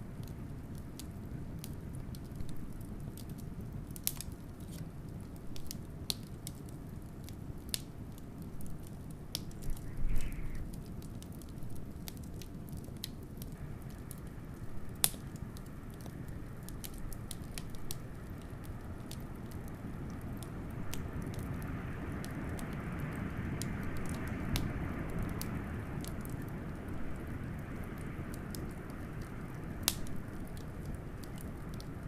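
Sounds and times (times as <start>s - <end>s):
low wind rumble: 0.0s - 32.0s
wood fire crackling and popping: 0.0s - 32.0s.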